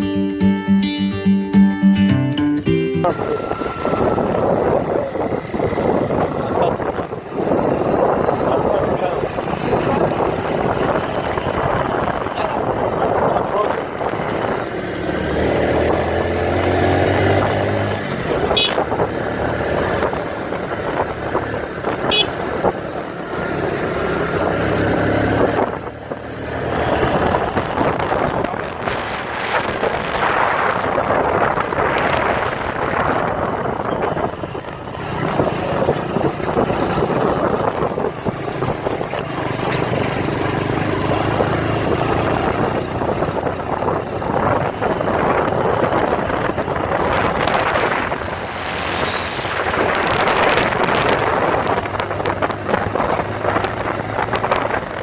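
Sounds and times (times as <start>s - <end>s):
motorcycle engine running: 3.0s - 55.0s
wind rushing over microphone: 3.0s - 55.0s.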